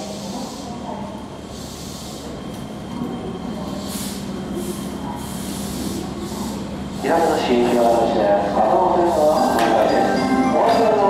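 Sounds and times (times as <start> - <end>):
electric train running hum: 0.0 - 11.0.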